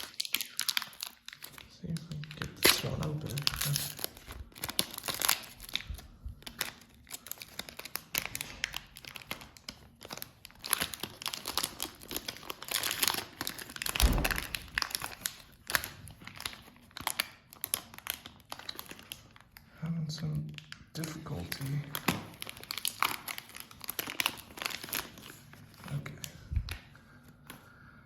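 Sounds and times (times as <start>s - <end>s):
plastic wrapper crinkling and tearing: 0.0s - 27.6s.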